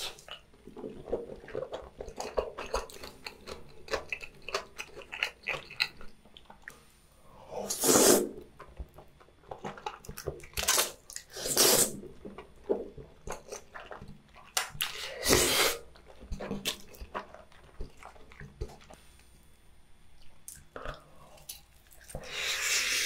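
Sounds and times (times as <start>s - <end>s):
soft chewing and mouth sounds: 0.0s - 23.0s
loud wet slurps: 7.6s - 8.4s, 10.8s - 12.1s, 14.8s - 16.9s.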